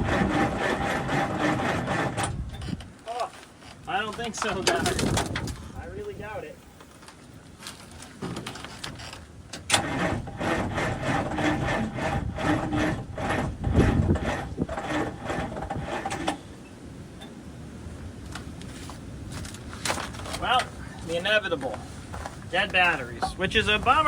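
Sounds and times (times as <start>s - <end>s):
diesel engine cranking slowly: 0.0s - 2.9s, 9.6s - 16.6s.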